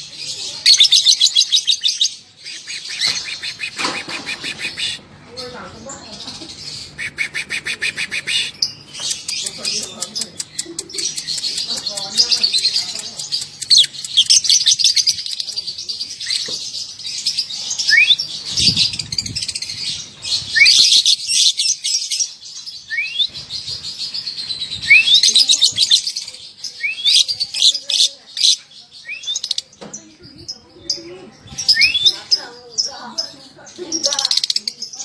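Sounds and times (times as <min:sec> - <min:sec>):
lovebird chattering trill: 0:06.5 - 0:15.6.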